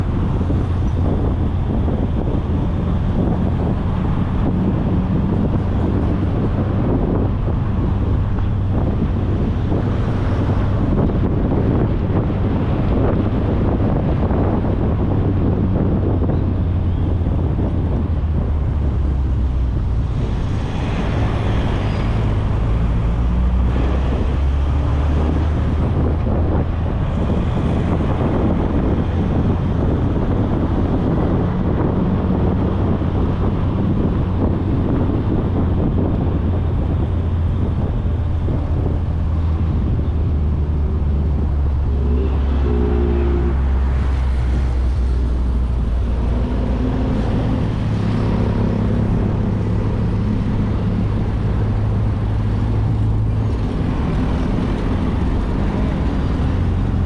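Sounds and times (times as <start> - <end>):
car engine and road noise: 0.0 - 57.0
wind on microphone: 0.0 - 57.0.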